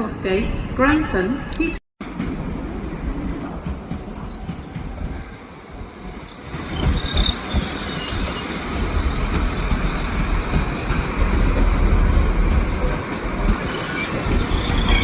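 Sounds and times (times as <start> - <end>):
train rumbling: 1.5 - 15.0
high-pitched metal squeal: 13.6 - 15.0.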